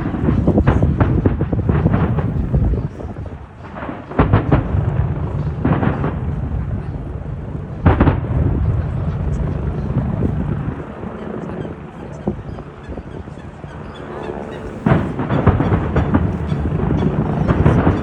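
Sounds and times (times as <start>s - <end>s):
low rumble: 0.0s - 14.0s
fireworks booms: 0.0s - 18.0s.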